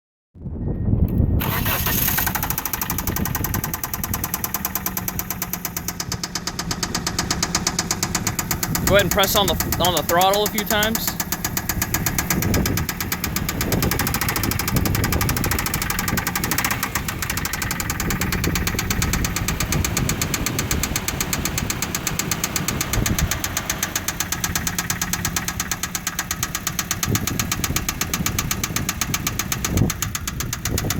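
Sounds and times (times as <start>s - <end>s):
engine knocking: 1.4s - 30.9s.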